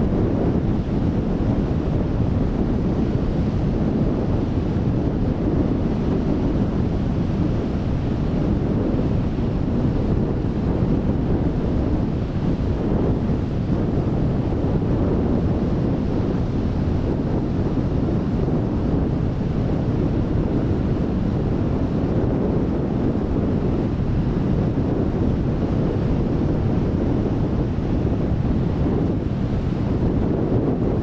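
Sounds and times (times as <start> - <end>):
waves of rough sea: 0.0 - 31.0
wind on microphone: 0.0 - 31.0.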